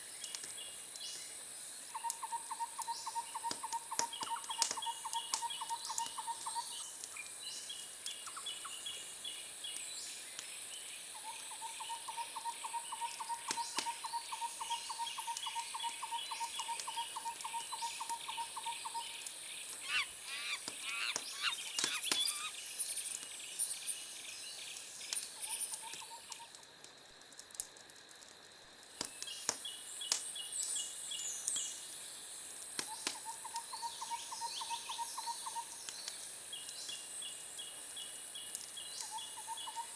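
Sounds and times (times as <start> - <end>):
bird chirps: 11.3 - 22.6
high insect buzz: 19.5 - 22.7
sharp pops: 20.6 - 22.5.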